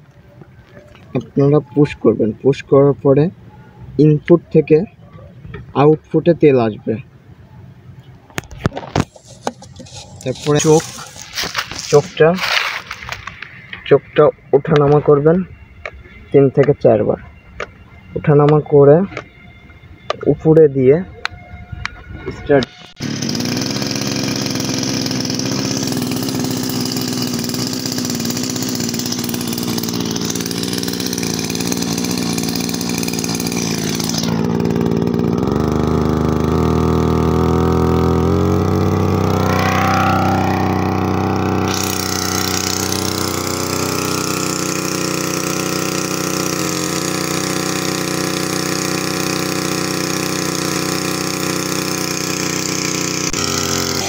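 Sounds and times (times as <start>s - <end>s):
small two-stroke engine running: 8.4s - 13.9s, 22.6s - 54.0s.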